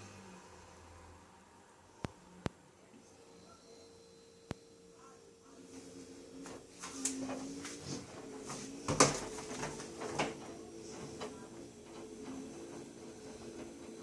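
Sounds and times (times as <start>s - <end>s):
washing machine motor hum: 0.0s - 14.0s
knocks and clatters: 6.5s - 14.0s.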